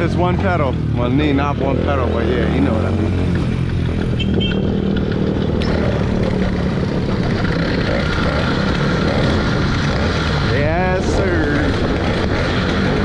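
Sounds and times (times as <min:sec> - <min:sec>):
small motorbike engine running: 0:03.2 - 0:13.0.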